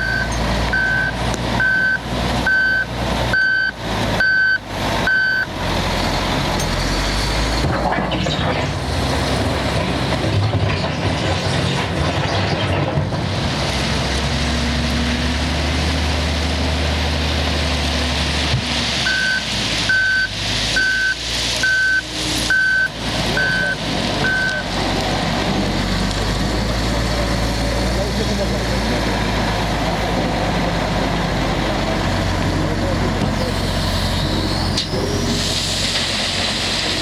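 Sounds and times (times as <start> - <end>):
reversing alarm beeps: 0.0 - 5.5, 19.1 - 24.6
heavy diesel machinery running: 0.0 - 37.0.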